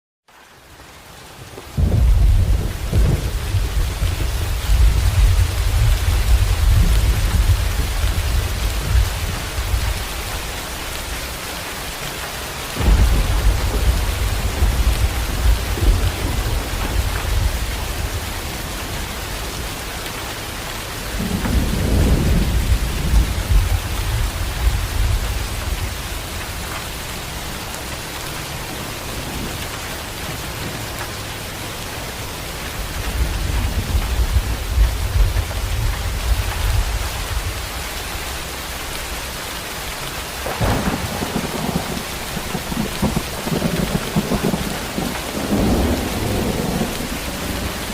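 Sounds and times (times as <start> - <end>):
heavy rain falling: 0.3 - 47.9
thunder rolling: 1.8 - 10.0, 12.8 - 18.6, 21.2 - 25.9, 40.4 - 47.9.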